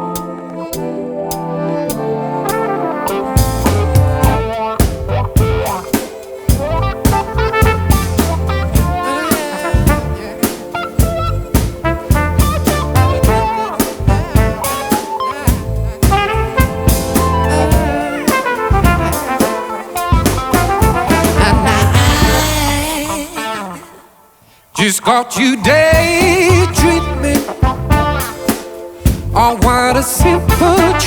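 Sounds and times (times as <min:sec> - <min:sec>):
flugelhorn melody: 0:00.0 - 0:24.1, 0:26.4 - 0:28.8, 0:29.8 - 0:31.0
drum kit beat: 0:02.4 - 0:23.6, 0:25.9 - 0:31.0
bass: 0:03.2 - 0:05.9, 0:06.5 - 0:09.1, 0:09.8 - 0:18.1, 0:18.7 - 0:19.4, 0:20.1 - 0:23.4, 0:25.6 - 0:28.5, 0:29.1 - 0:31.0.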